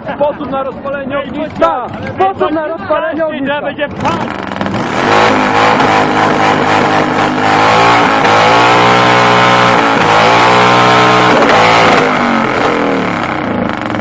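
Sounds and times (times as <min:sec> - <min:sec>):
motorcycle engine revving: 0:03.8 - 0:14.0.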